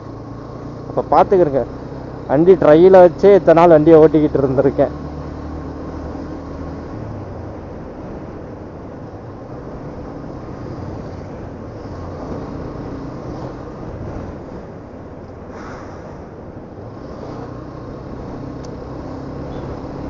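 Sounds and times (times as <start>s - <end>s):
wind rushing over microphone: 4.8s - 20.0s.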